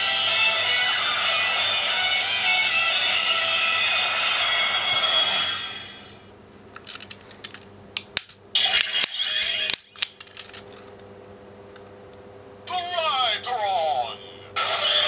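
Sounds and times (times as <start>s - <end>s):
plastic toy clicks and rattles: 6.8s - 7.6s, 8.2s - 10.8s.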